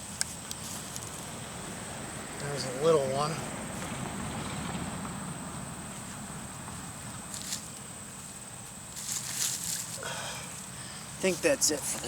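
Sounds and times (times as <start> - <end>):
hands scraping through soil and stones: 8.9 - 10.0.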